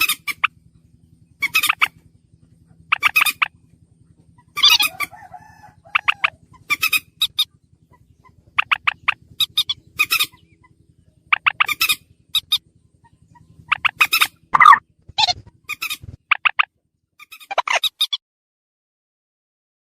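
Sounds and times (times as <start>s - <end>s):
moorhen harsh calls: 0.0s - 0.6s, 1.3s - 2.0s, 2.9s - 3.6s, 4.4s - 18.2s
faint low hum: 0.0s - 18.1s.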